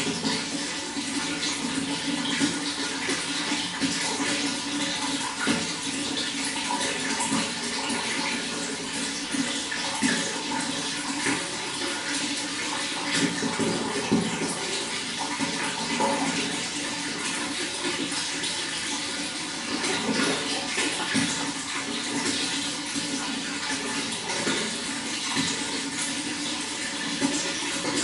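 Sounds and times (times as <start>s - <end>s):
running water splashing: 0.0s - 28.0s.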